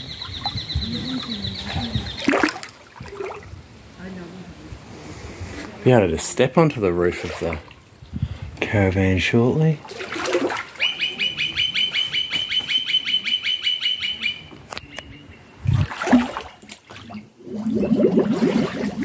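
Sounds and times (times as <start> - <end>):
bird chattering: 10.8 - 15.4.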